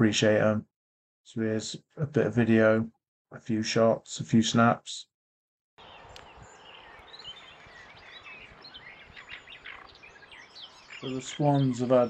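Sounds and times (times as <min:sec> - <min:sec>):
faint outdoor hiss: 0:05.8 - 0:12.0
small birds chirping: 0:05.8 - 0:12.0.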